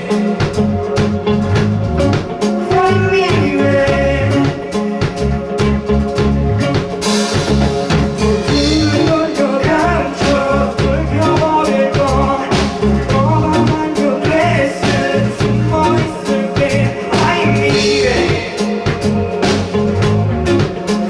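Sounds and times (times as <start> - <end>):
person singing: 0.0 - 1.4, 2.2 - 5.5, 8.0 - 19.8
bass: 0.0 - 21.0
drums: 0.0 - 21.0
electric guitar: 0.0 - 21.0.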